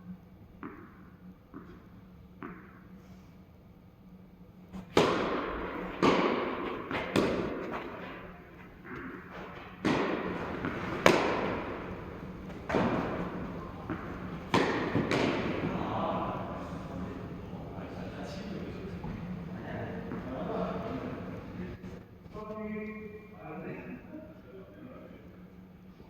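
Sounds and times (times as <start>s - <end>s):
tennis ball bouncing on court: 0.6s - 2.8s, 4.8s - 17.4s, 20.0s - 20.7s
tennis ball hit by racket: 2.4s - 2.8s, 4.8s - 17.4s.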